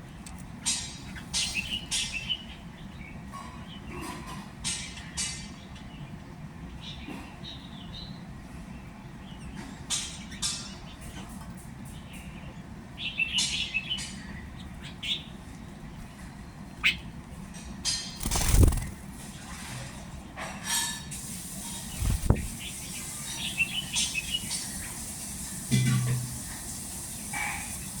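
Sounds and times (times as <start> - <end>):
small birds chirping: 0.0 - 3.9, 4.9 - 17.4, 18.0 - 19.1, 21.5 - 25.4.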